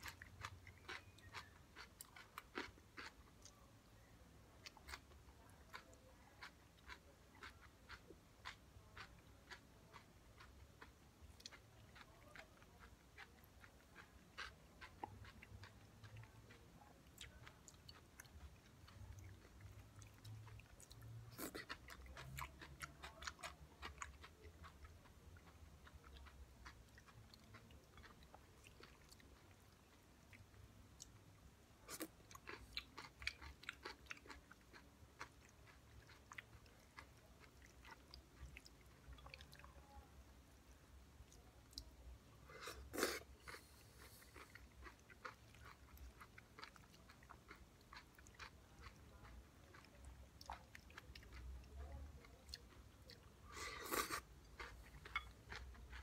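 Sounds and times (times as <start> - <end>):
crunchy chewing: 0.0 - 3.6, 4.6 - 31.2, 31.8 - 39.7, 42.5 - 56.0.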